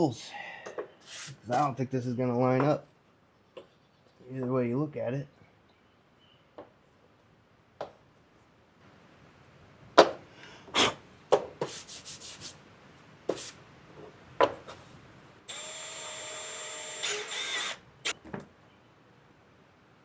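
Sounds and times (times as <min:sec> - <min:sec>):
power drill running: 0:15.5 - 0:18.1.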